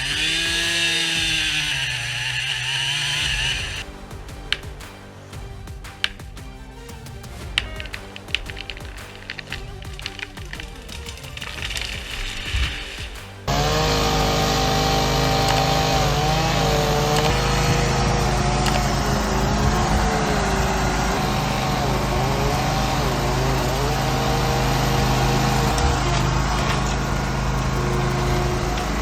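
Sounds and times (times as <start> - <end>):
high whine: 7.3 - 29.0
engine running under load: 8.4 - 29.0.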